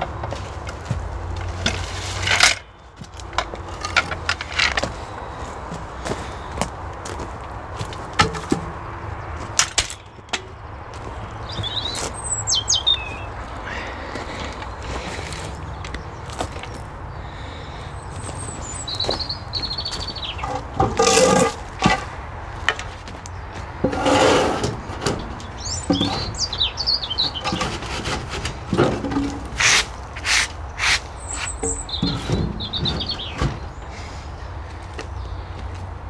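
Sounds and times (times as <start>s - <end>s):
greenhouse frame knocking and scraping: 0.0s - 12.2s, 19.0s - 30.3s, 31.3s - 33.9s
small birds chirping: 8.8s - 21.4s, 24.8s - 27.9s, 29.6s - 35.8s.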